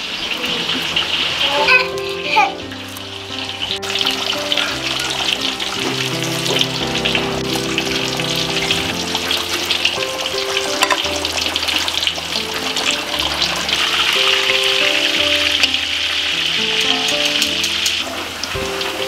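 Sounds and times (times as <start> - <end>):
fish frying in oil: 0.0 - 19.0
soft background music: 0.2 - 19.0
metal tongs clicking: 16.7 - 18.2.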